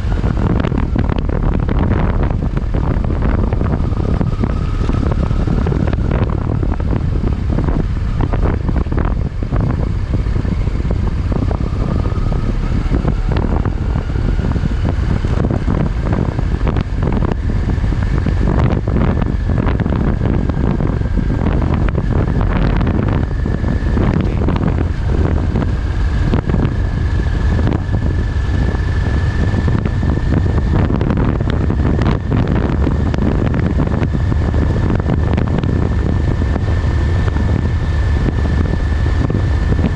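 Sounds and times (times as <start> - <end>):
motorcycle engine: 0.0 - 39.9
thin rising whine: 0.0 - 39.9
wind buffeting microphone: 0.0 - 39.9.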